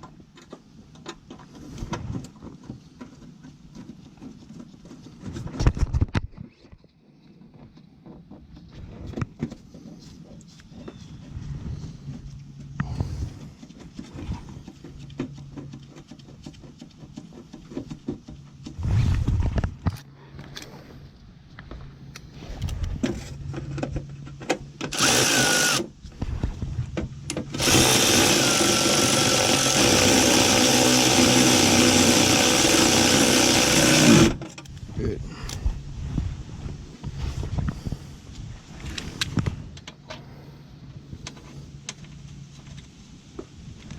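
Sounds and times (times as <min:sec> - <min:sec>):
cordless drill driving fasteners: 0:24.8 - 0:25.9, 0:27.3 - 0:34.8.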